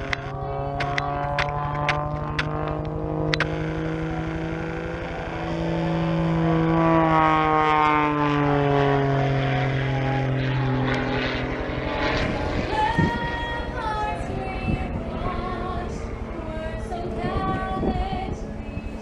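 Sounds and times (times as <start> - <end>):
propeller aircraft passing: 0.0 - 19.0
sharp click: 0.8 - 3.5.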